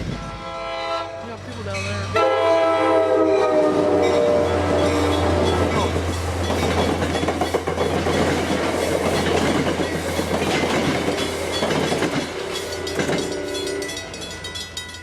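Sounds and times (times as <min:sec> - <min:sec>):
train low rumble: 0:00.0 - 0:15.0
train wheels clattering over rails: 0:04.1 - 0:15.0.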